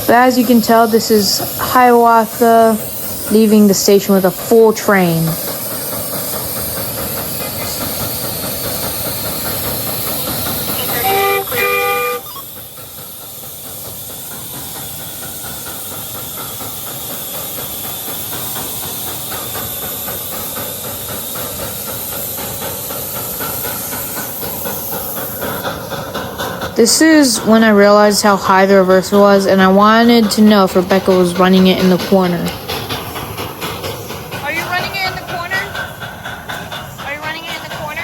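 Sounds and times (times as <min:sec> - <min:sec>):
steam hiss: 0:00.0 - 0:38.0
steam locomotive chuffing: 0:00.0 - 0:38.0
locomotive whistle: 0:10.7 - 0:12.6.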